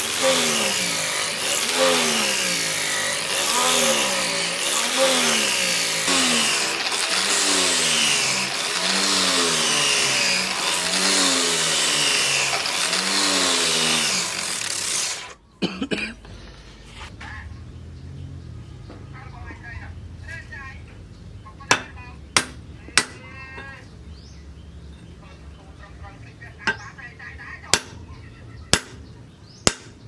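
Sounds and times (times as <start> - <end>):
motor-driven machine running: 0.0 - 15.4
sharp knocks: 21.7 - 23.3, 29.7 - 30.0.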